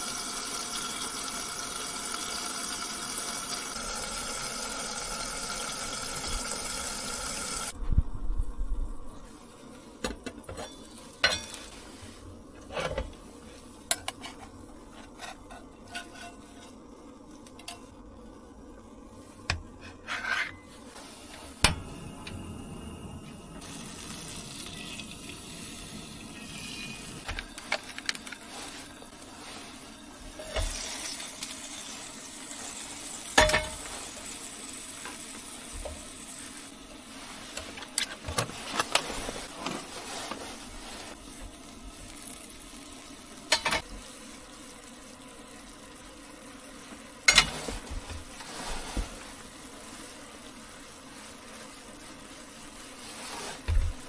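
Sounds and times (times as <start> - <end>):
food sizzling in a pan: 0.0 - 7.8, 9.3 - 54.0
pots and pans clinking: 10.0 - 11.8, 13.9 - 16.8, 26.2 - 28.4, 33.3 - 34.2, 43.5 - 43.9, 47.3 - 48.2.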